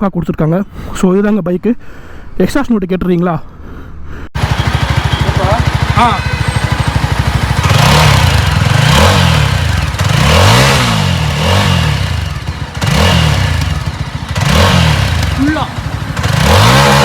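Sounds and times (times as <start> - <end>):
motorcycle engine revving: 4.4 - 17.0.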